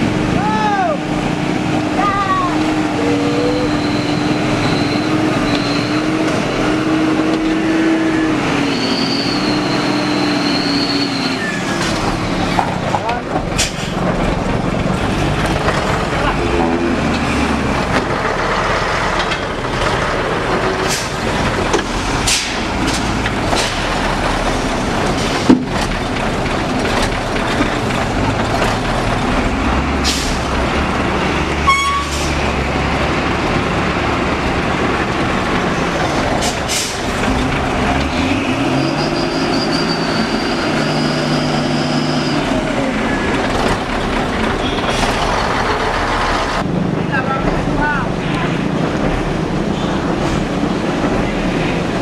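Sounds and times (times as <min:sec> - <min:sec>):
truck engine running under load: 0:01.0 - 0:47.0.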